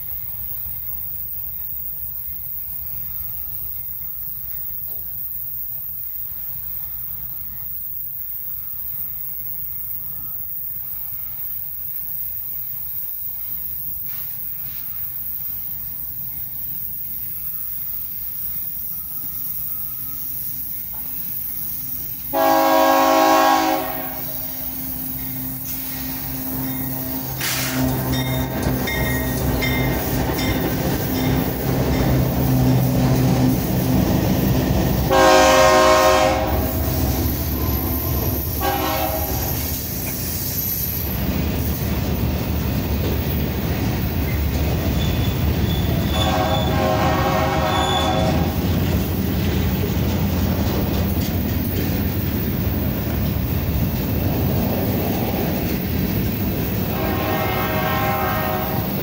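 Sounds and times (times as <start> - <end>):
train wheels rumbling on rails: 0.0 - 59.0
locomotive engine drone: 14.6 - 59.0
locomotive horn blasts: 22.3 - 28.7, 34.8 - 39.8, 45.8 - 48.7, 56.8 - 59.0.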